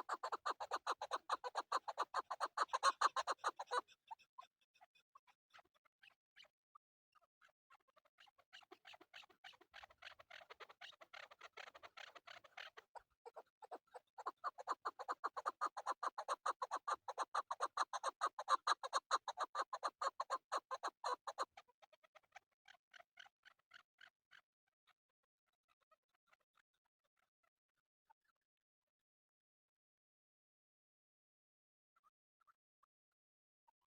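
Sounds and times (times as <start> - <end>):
partridge clucking calls: 0.0 - 4.0, 8.8 - 21.5.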